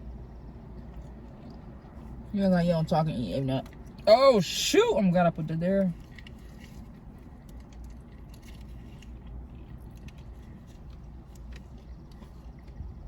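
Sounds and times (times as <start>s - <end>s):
steady low hum: 0.0s - 13.0s
person chewing food: 0.1s - 2.3s, 6.0s - 13.0s.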